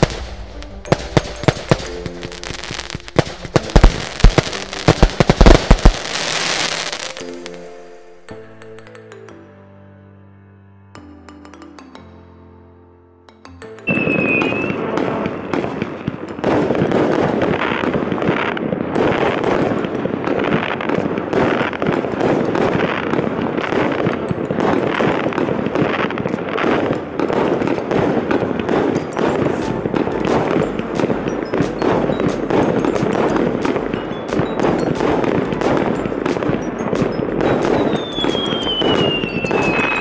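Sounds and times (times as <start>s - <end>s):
fireworks bangs and crackle: 0.0s - 7.6s, 13.9s - 40.0s
firework whistle: 13.9s - 17.7s, 31.6s - 40.0s.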